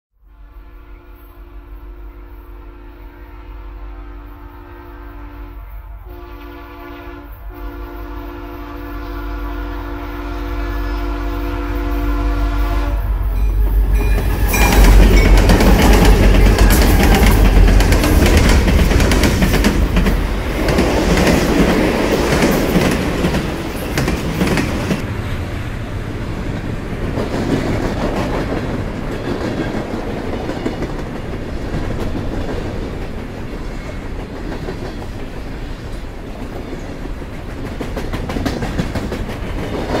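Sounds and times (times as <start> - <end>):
train horn: 0.2 - 19.0
train wheels clacking over rail joints: 13.6 - 25.0, 26.4 - 40.0.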